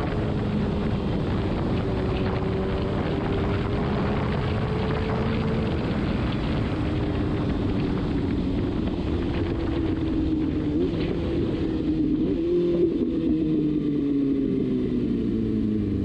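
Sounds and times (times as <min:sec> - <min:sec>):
wind rush: 0:00.0 - 0:14.3
motorcycle engine cruising: 0:00.0 - 0:16.0.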